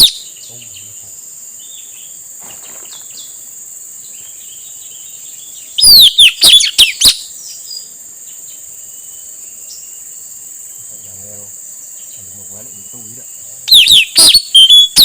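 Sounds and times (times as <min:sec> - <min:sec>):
parrot shrill falling calls: 0:00.0 - 0:00.2, 0:05.8 - 0:07.2, 0:13.7 - 0:15.0
faint chirps: 0:00.0 - 0:15.0
high insect drone: 0:00.0 - 0:15.0.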